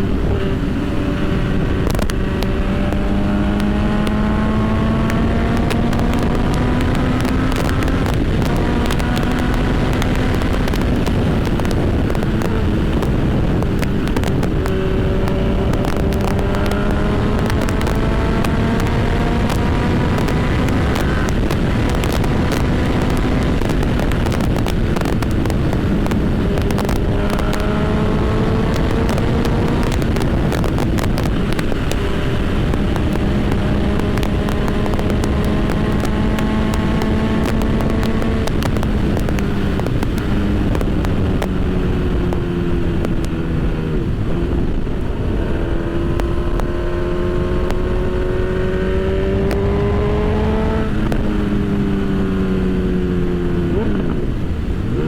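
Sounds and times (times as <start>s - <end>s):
motorcycle engine accelerating: 0.0s - 55.0s
wind and road noise: 0.0s - 55.0s.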